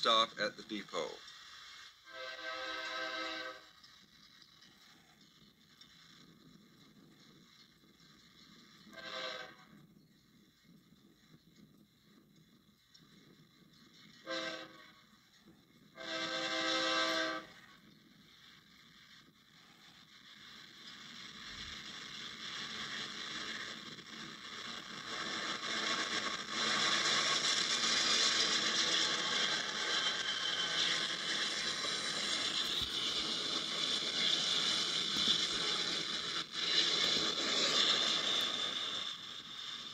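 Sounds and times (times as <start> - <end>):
freight train cars rattling: 19.6 - 39.9.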